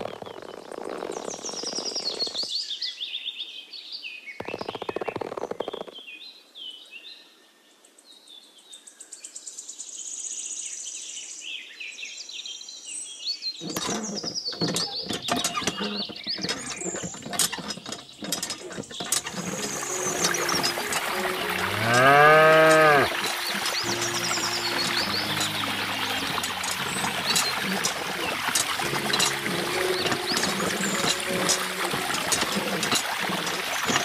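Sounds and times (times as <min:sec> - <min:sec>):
birds chirping and singing: 0:13.6 - 0:33.0
hand pump clicking and rattling: 0:13.6 - 0:34.0
plastic tubing handling noise: 0:13.6 - 0:34.0.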